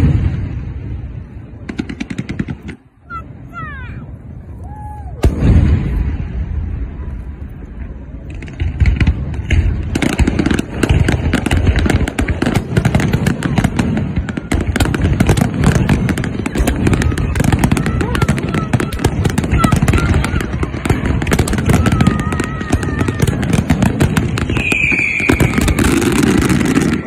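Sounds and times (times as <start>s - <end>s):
firework bangs: 0.0s - 3.7s, 5.2s - 7.1s, 7.8s - 27.0s
firework crackles: 0.0s - 27.0s
firework whistle: 24.3s - 27.0s.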